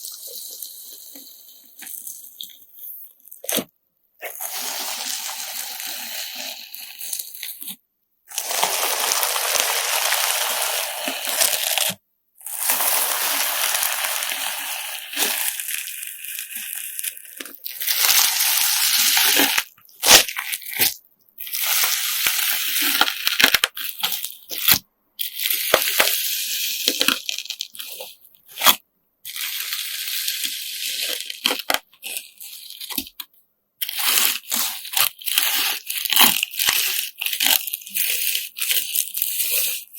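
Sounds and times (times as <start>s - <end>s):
slime squeezed with crunchy squishing: 3.4s - 33.2s, 33.8s - 39.9s.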